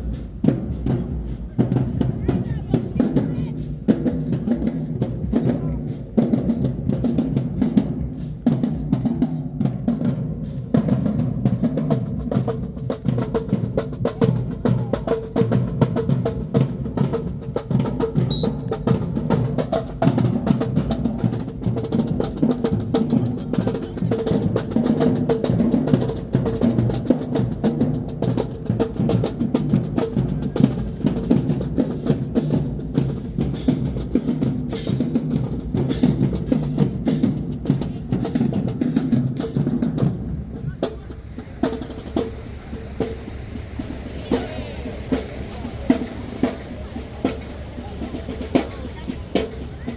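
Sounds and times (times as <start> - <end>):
bass drum beats: 0.0 - 49.9.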